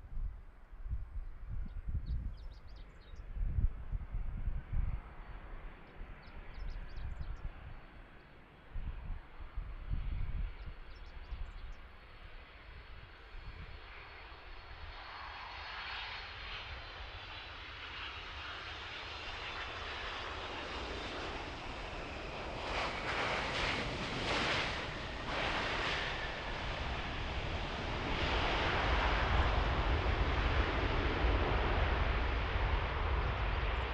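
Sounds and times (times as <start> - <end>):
wind rumble on microphone: 0.0 - 8.0, 8.6 - 15.8, 18.9 - 33.9
jet engine noise with whine: 0.0 - 33.9.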